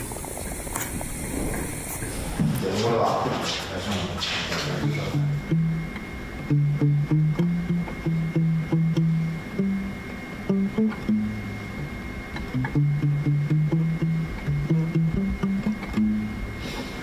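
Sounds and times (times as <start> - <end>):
faint high-pitched tone: 4.8 - 16.6
guitar plucking low notes: 4.8 - 16.6.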